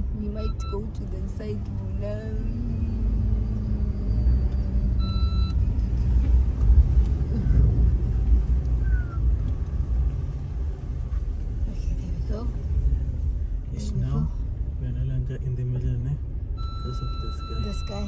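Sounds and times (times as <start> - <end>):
car engine rumbling: 0.0 - 18.0
short beep: 4.2 - 5.6, 16.6 - 18.0.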